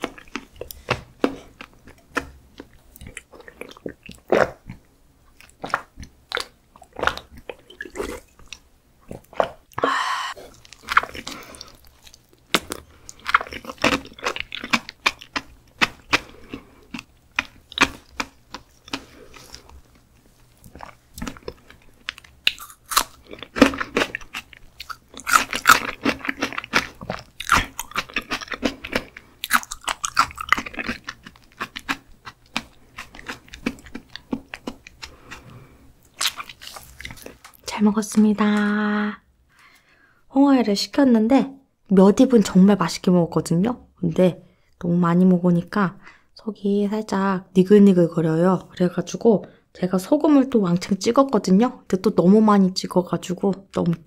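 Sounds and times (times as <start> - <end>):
chewing with mouth clicks: 10.5 - 37.4.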